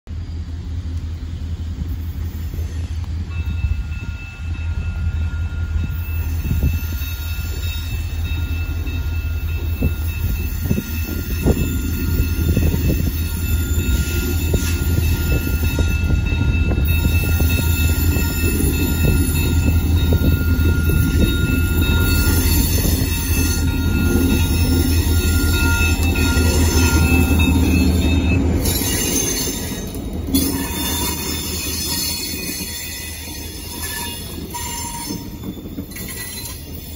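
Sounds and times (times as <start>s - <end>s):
diesel locomotives rumbling: 0.1s - 36.9s
wheel squeal: 5.9s - 8.1s, 16.8s - 36.9s.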